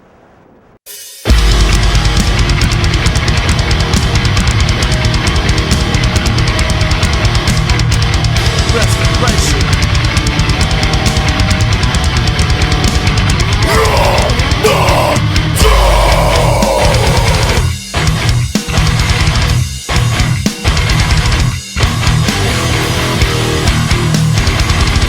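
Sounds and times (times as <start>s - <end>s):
distorted electric guitars: 1.2s - 25.0s
rapid drumming: 1.3s - 25.0s
shouted vocal: 13.6s - 17.7s.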